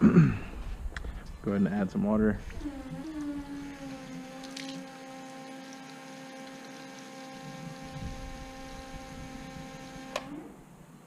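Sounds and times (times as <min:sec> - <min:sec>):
steady humming tone: 0:00.0 - 0:11.0
water running from a tap: 0:02.5 - 0:09.9.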